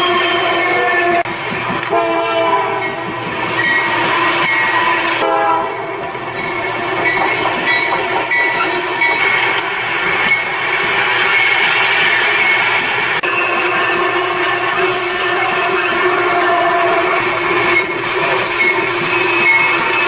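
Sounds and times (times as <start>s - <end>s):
locomotive air horn chords: 0.0s - 1.3s, 1.9s - 3.0s, 4.2s - 5.8s, 13.3s - 17.3s
freight train rumble and clatter: 0.0s - 20.0s.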